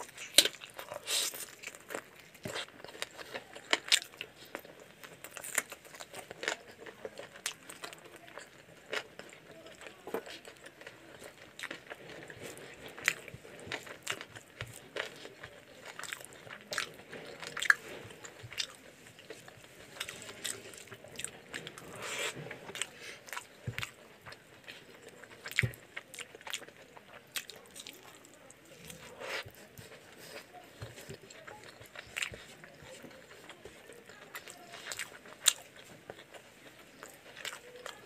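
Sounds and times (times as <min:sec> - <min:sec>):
person chewing food: 0:00.0 - 0:38.0.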